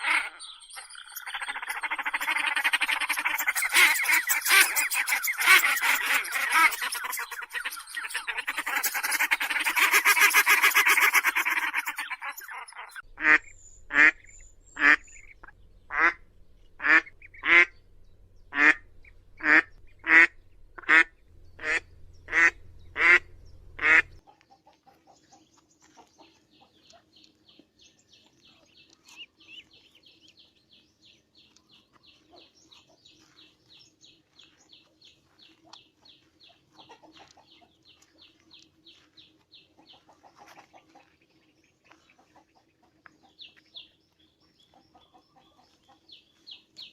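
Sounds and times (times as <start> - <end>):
domestic waterfowl calling: 0.0 - 17.8, 18.5 - 25.1.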